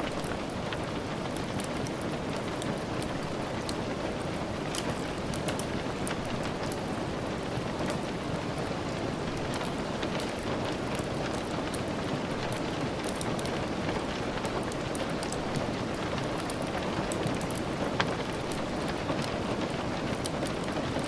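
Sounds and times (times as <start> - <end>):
log fire crackling: 0.0 - 21.0
steady rain hissing: 0.0 - 21.0.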